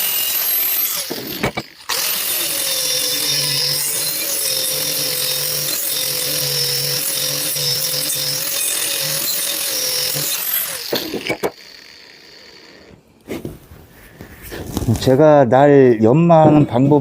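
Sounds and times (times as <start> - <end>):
angle grinder grinding steel: 0.0 - 13.0.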